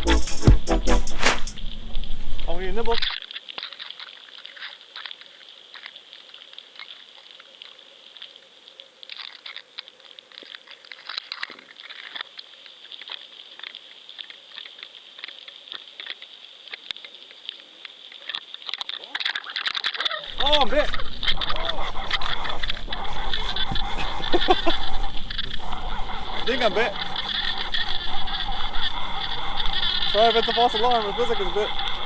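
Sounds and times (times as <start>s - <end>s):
water lapping against kayak hull: 20.3s - 32.0s.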